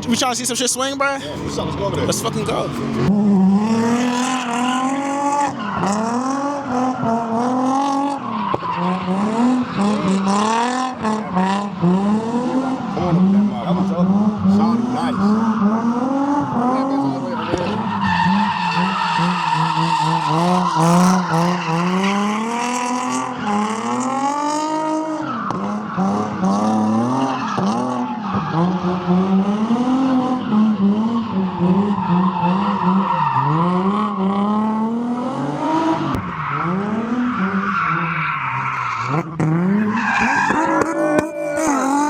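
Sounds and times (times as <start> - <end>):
car engine revving hard: 1.2 - 42.0
tyre squeal: 39.8 - 42.0.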